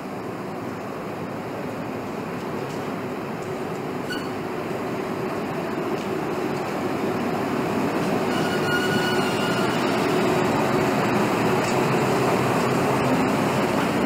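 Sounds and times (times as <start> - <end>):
train wheels rumbling on track: 0.0 - 14.0
high wheel squeal: 4.0 - 4.4, 8.2 - 10.5.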